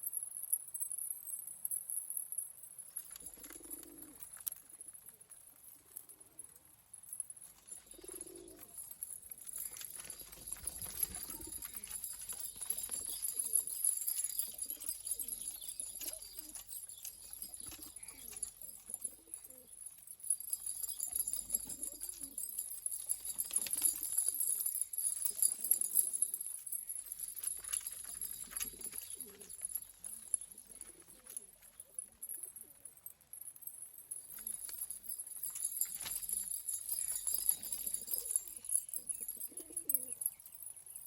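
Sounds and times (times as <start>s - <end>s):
pigeons cooing: 3.2s - 4.4s, 7.7s - 19.9s, 20.9s - 26.5s, 27.5s - 32.6s, 36.2s - 40.3s.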